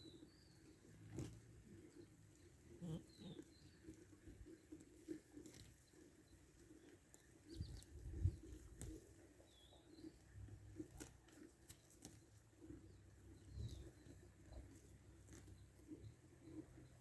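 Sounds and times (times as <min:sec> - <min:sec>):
faint bird chirps: 0:02.8 - 0:03.9.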